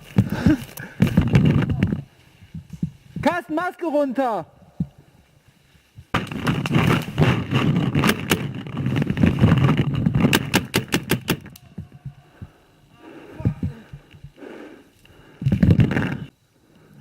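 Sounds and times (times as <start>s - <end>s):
paintball markers firing: 10.2s - 11.7s.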